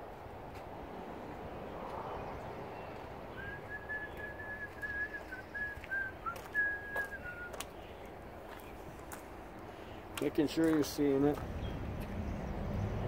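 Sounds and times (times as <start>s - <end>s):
person whistling: 3.4s - 7.6s.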